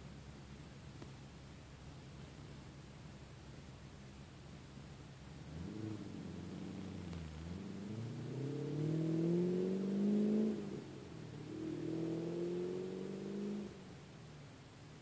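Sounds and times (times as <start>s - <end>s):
vehicle engine accelerating: 4.9s - 14.1s.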